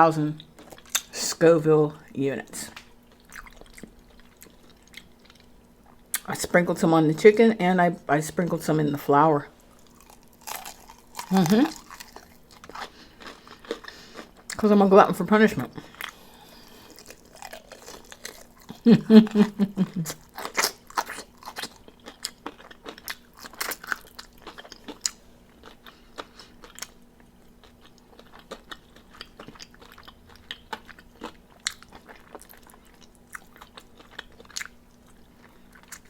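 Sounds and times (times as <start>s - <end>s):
crunching fried chicken: 9.7s - 14.6s, 15.8s - 36.0s.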